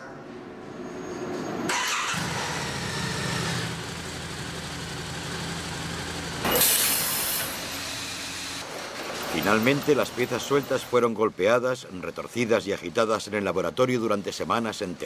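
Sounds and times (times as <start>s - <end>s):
motorcycle engine starting and idling: 1.7s - 6.8s.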